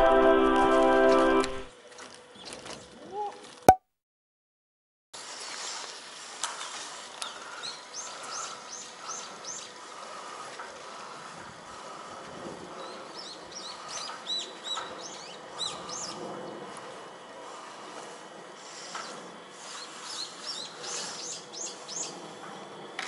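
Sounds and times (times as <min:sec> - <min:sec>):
small songbird chirping: 0:07.6 - 0:09.8, 0:19.1 - 0:22.2.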